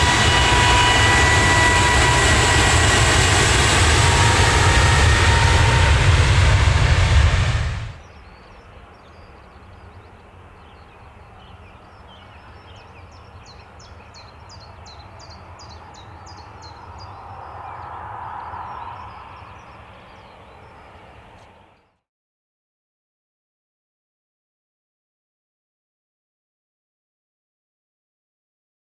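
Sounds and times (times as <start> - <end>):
loud jet noise: 0.0 - 8.0, 15.0 - 21.7
low outdoor rumble: 0.0 - 8.4
distant engine noise: 0.0 - 21.9
small birds chirping: 8.0 - 21.9.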